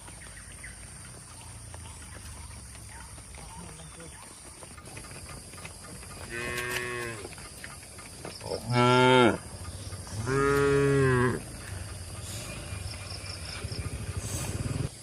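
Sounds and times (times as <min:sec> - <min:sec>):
cattle mooing: 0:06.3 - 0:07.3, 0:08.5 - 0:12.2.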